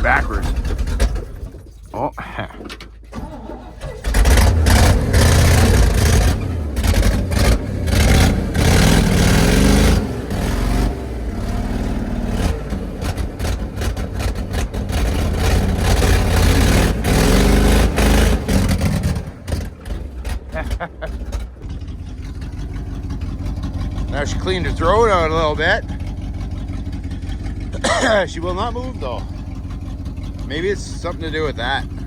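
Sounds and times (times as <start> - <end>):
vehicle engine revving hard: 0.0 - 1.5, 3.2 - 32.0.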